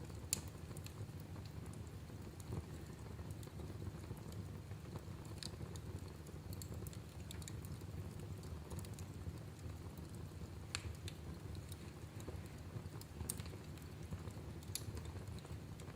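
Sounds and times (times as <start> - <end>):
wood fire crackling: 0.0 - 15.9.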